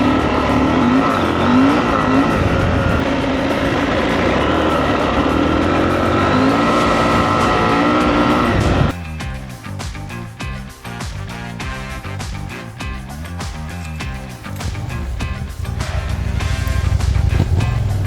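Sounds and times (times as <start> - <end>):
steady rushing noise: 0.0 - 9.0, 14.0 - 18.0
motorcycle engine: 0.0 - 18.0.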